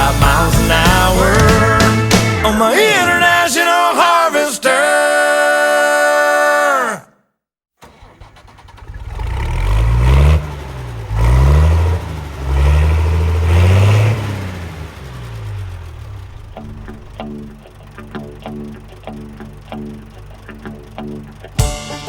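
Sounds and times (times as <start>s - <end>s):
engine revving: 7.8s - 21.6s.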